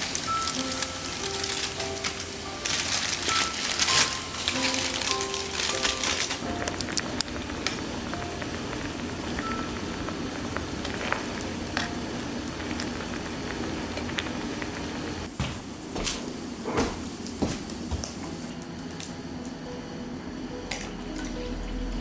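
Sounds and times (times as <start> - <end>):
food sizzling on a barbecue: 0.0 - 18.5
fire crackling and popping: 0.0 - 19.2.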